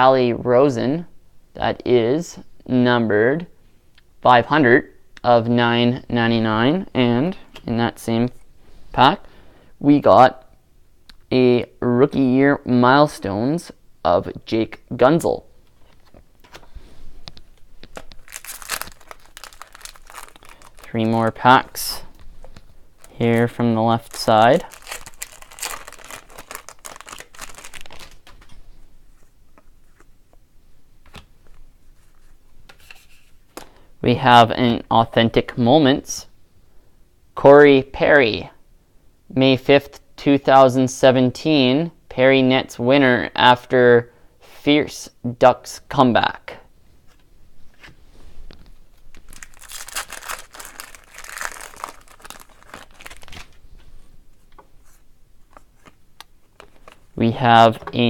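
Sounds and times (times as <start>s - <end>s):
wrapper torn and crinkled: 17.9s - 22.0s, 23.0s - 28.5s, 49.1s - 53.6s.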